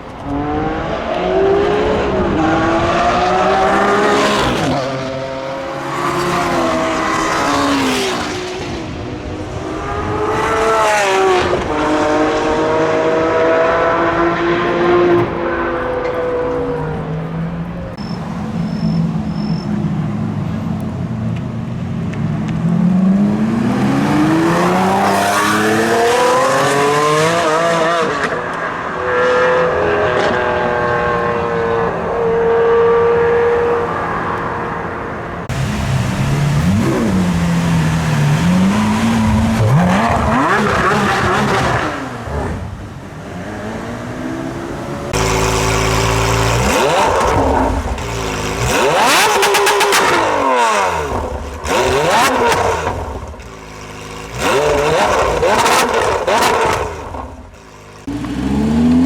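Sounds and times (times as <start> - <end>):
sports car engines revving: 0.0 - 59.0.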